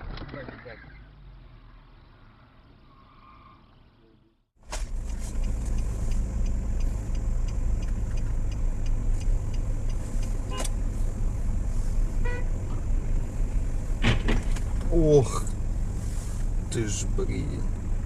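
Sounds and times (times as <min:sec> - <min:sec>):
engine and road noise: 0:00.0 - 0:18.0
faint regular ticking: 0:05.4 - 0:10.4.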